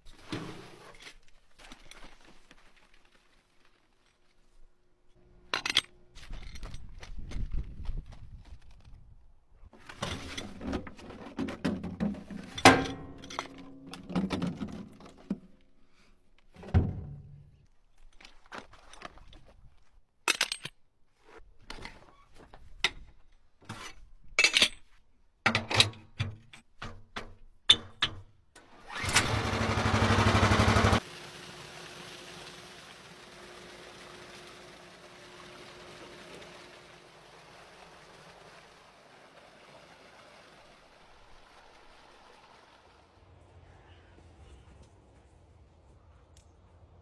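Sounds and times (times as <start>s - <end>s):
engine being cranked: 28.8s - 31.0s.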